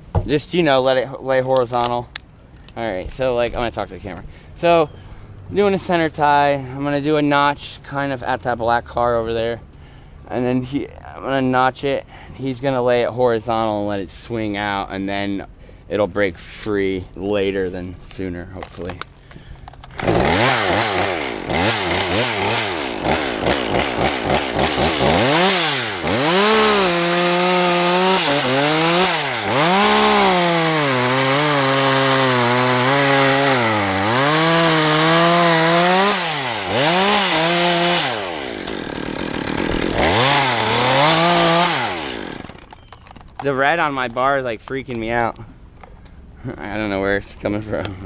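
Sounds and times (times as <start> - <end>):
chainsaw cutting wood: 19.8 - 43.2.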